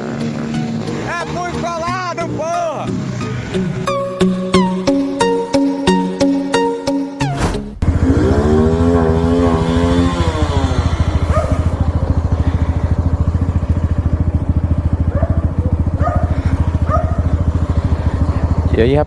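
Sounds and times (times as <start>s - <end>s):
motorcycle engine revving and idling: 0.0s - 3.8s, 7.8s - 19.0s.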